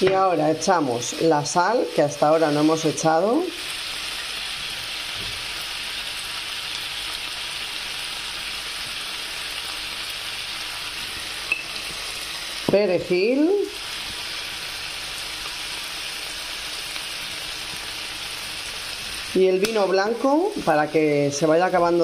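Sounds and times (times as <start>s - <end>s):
fish frying in oil: 0.0s - 22.0s.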